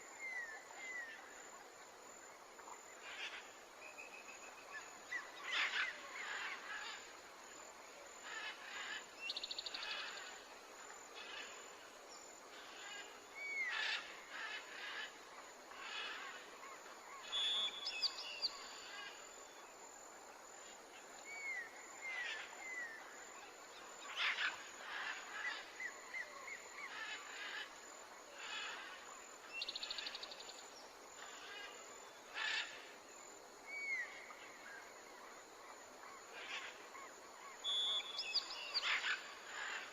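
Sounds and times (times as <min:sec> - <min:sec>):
faint background hiss: 0:00.0 - 0:39.9
birds chirping and trilling: 0:37.6 - 0:39.9.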